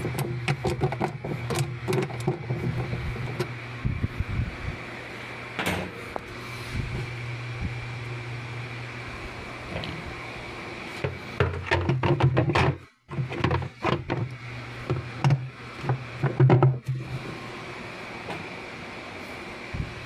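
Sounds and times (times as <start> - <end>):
knocking and rattling: 0.0 - 3.5, 11.0 - 14.3, 14.9 - 16.8
washing machine humming: 0.0 - 20.0.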